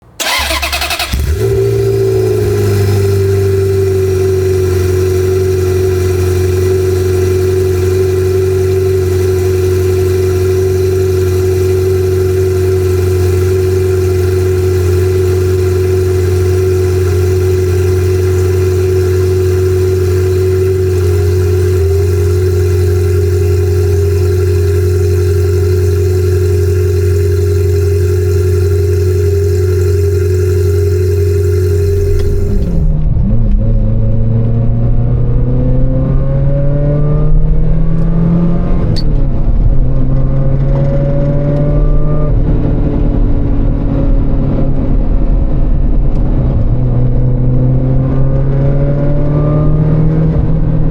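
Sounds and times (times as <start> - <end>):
starter cranking: 0.0 - 33.0
car engine idling: 0.0 - 34.2.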